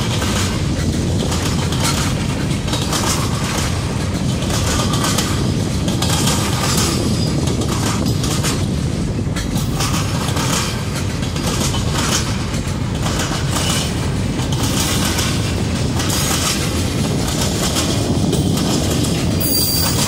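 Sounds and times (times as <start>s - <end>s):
steel wheels rumbling on rail: 0.0s - 20.0s.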